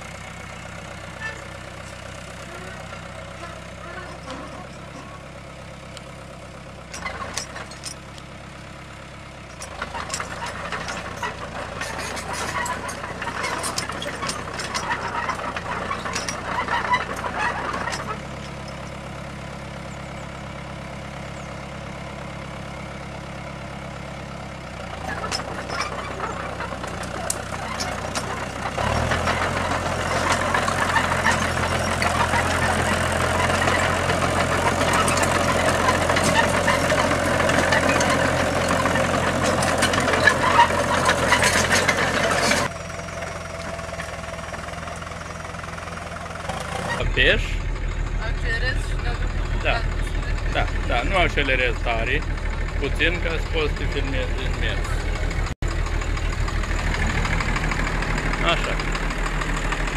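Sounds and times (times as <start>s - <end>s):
heavy machine engine idling: 0.0s - 59.9s
clattering: 9.6s - 19.0s.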